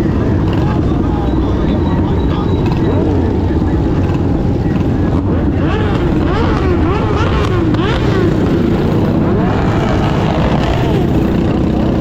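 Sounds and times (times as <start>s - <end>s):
mini bike engines revving: 0.0s - 12.0s.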